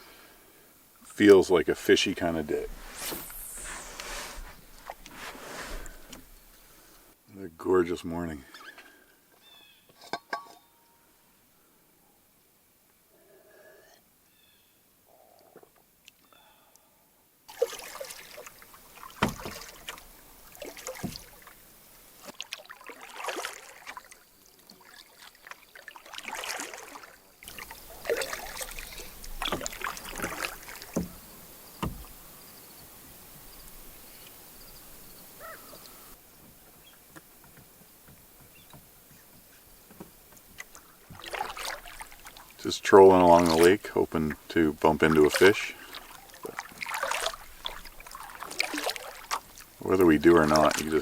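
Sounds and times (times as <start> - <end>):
paddle swishing water: 1.4 - 7.2, 17.5 - 32.4, 35.4 - 51.0
paddle knocking against hull: 19.2 - 20.0, 29.4 - 32.2.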